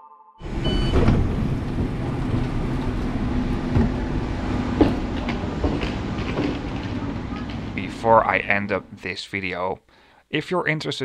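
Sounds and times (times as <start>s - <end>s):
short high beep: 0.0s - 1.0s
train door opening: 0.4s - 8.9s
rumble and hum of trains: 0.4s - 9.0s.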